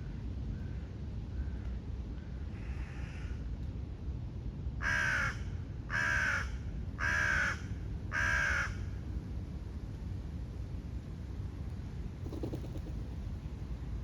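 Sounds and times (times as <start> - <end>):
crow cawing: 4.8 - 8.7.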